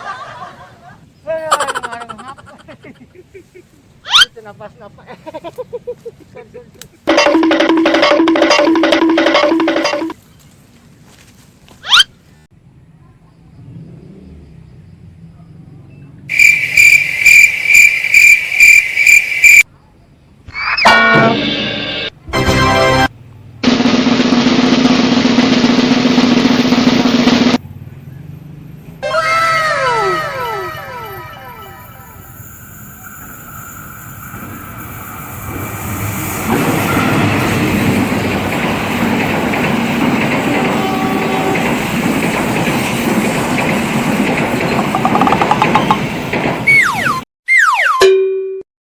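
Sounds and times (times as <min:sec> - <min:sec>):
train passing on rails: 0:00.0 - 0:10.3, 0:16.3 - 0:19.6, 0:22.1 - 0:29.0, 0:29.9 - 0:47.2
level crossing bell ringing: 0:07.1 - 0:10.2.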